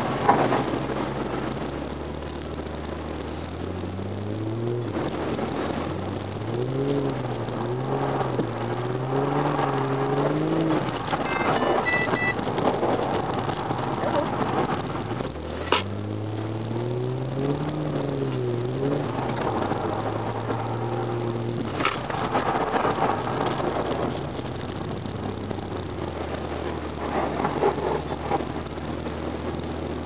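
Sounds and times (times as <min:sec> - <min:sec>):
car engine revving: 0:00.0 - 0:30.0
tyre and road noise: 0:00.0 - 0:30.0.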